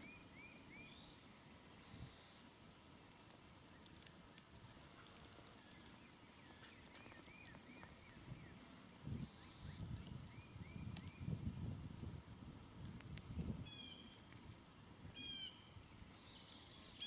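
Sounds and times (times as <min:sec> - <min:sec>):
bird chirping: 0:00.0 - 0:01.2, 0:05.4 - 0:08.6, 0:15.1 - 0:17.0
campfire crackling: 0:00.1 - 0:17.0.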